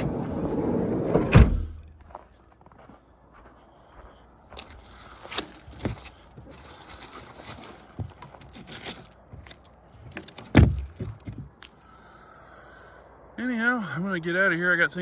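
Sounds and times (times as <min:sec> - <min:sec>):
footsteps crunching on icy snow: 0:02.0 - 0:09.7.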